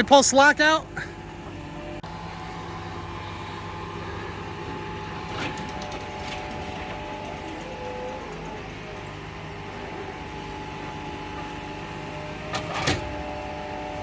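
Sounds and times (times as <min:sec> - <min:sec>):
diesel engine running with whine: 0:00.0 - 0:14.0
metallic clicks and rattles: 0:05.3 - 0:09.2.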